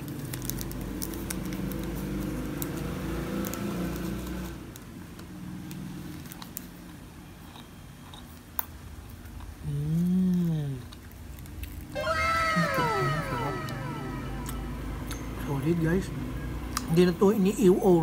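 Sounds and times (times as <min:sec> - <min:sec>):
biscuit crunching: 0:10.3 - 0:12.0
low steady hum: 0:12.0 - 0:16.5.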